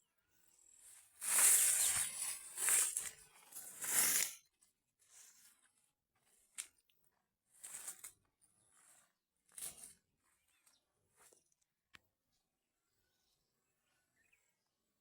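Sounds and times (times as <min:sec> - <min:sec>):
dry plants rustling and crunching: 0:01.2 - 0:04.2.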